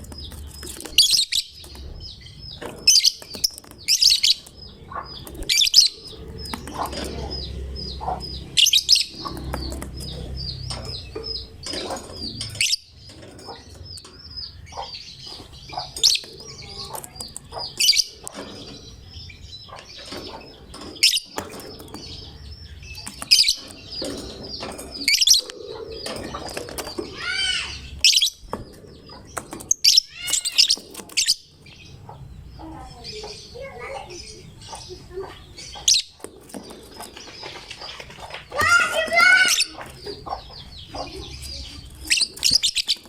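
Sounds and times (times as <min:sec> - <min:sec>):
bird chirping: 0:00.0 - 0:43.0.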